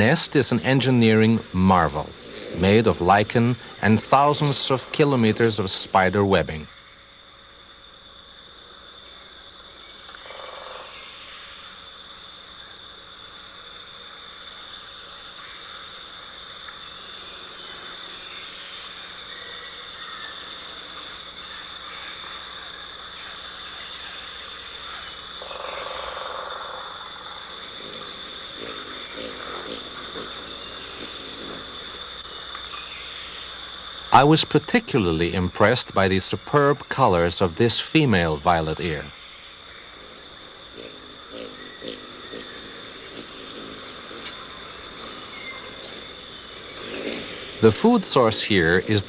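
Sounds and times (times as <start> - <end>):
chorus of calling animals: 0.0 - 6.8, 17.0 - 49.0.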